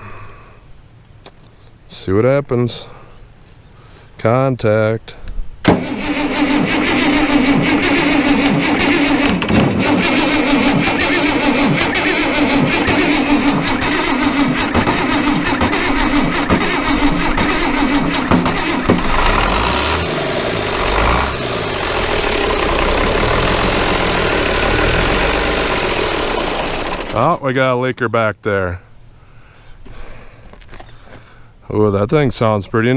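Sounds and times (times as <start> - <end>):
starter motor cranking: 5.7 - 27.4
diesel engine running: 5.8 - 27.5.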